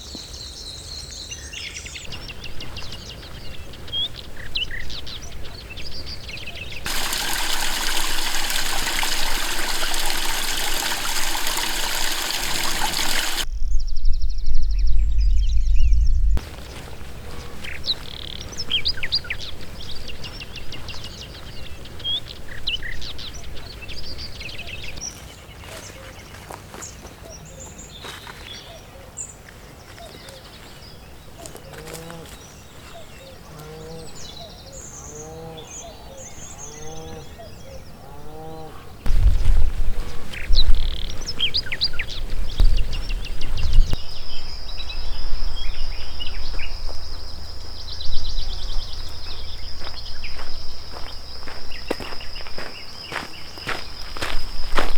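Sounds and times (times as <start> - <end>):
small birds chirping: 0.0 - 54.9
loud low rumble: 13.4 - 16.6.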